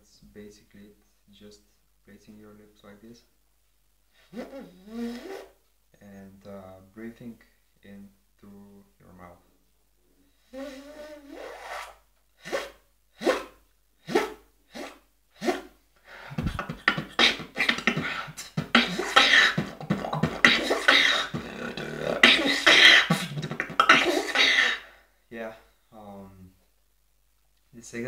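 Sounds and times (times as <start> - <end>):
beatbox zipper sound: 4.2 - 5.6, 10.5 - 24.9
fast beatbox pattern: 12.4 - 24.8.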